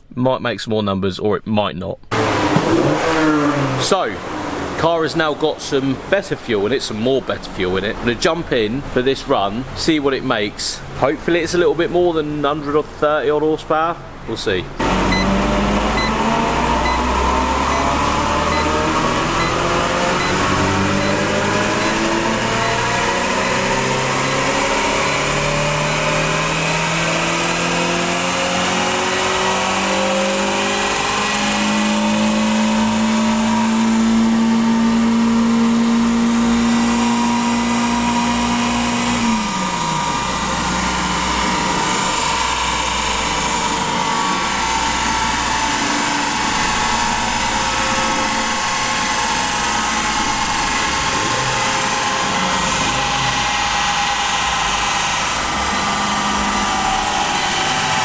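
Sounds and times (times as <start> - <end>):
car engine revving on dyno: 2.1 - 5.0, 14.8 - 58.0
dyno rollers rumbling: 14.7 - 58.0.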